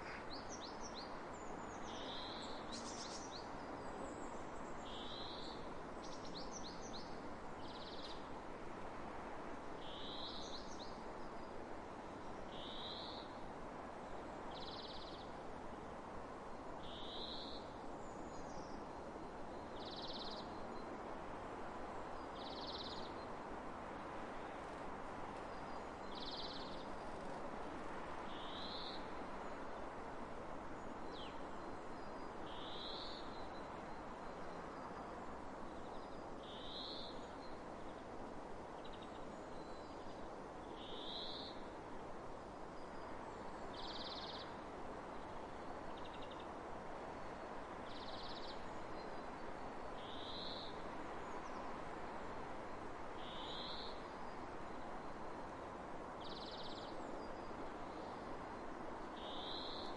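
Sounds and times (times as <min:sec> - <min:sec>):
faint bird chirps: 0:00.0 - 0:03.5, 0:38.8 - 0:41.6, 0:42.8 - 0:44.6, 0:47.8 - 0:51.7, 0:53.2 - 0:54.4, 0:56.2 - 0:58.2, 0:59.2 - 0:59.9
wind hiss: 0:00.0 - 0:03.8.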